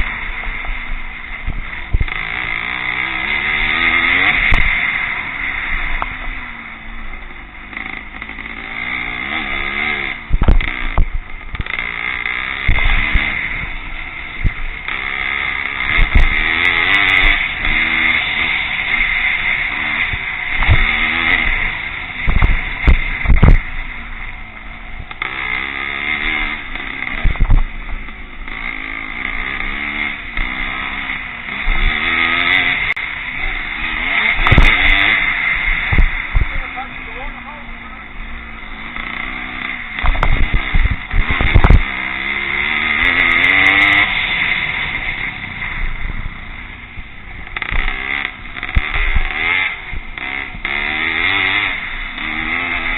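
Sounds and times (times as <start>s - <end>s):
motocross motorcycles revving: 0.0s - 52.9s
short low thumps: 22.2s - 23.9s, 27.2s - 28.1s, 34.3s - 35.0s, 40.0s - 41.9s.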